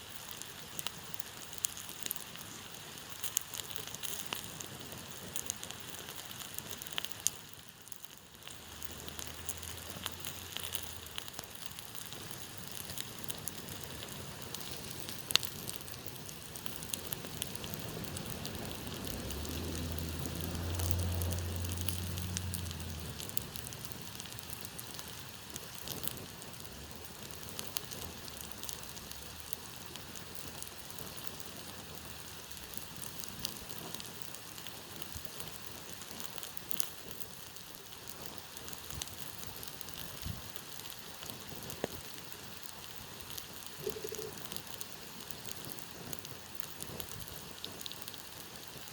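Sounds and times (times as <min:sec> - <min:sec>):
campfire crackling: 0:00.0 - 0:48.9
fire snap: 0:00.0 - 0:48.9.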